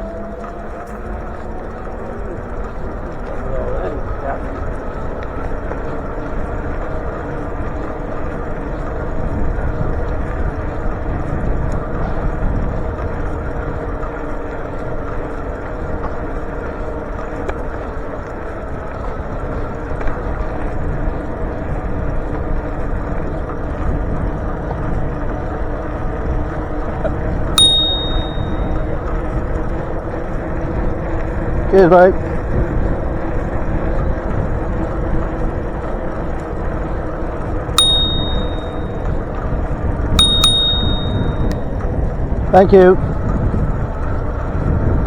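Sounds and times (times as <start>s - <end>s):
bicycle road noise: 0.0s - 45.0s
short high ping: 27.6s - 28.8s, 37.8s - 39.0s, 40.2s - 41.6s
wind on microphone: 37.6s - 45.0s.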